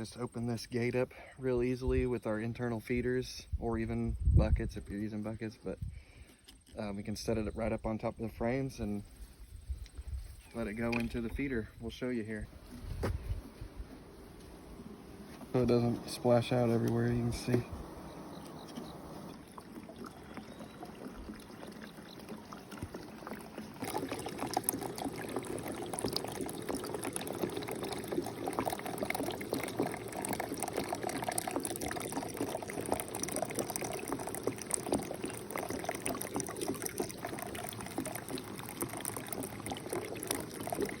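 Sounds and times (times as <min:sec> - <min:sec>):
syrup trickling from a bucket: 0:08.5 - 0:41.0.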